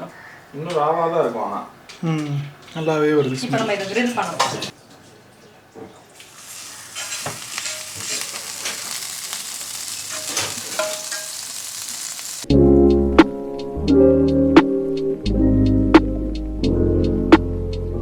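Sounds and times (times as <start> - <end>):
chicken sizzling on a grill: 6.2 - 12.5.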